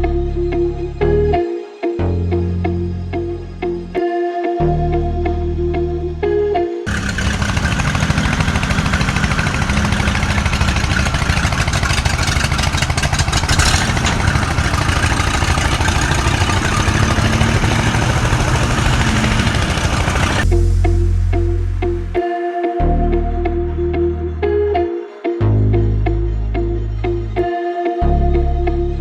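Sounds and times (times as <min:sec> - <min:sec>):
music: 0:00.0 - 0:06.9, 0:20.4 - 0:29.0
tractor diesel engine clattering: 0:06.9 - 0:20.4.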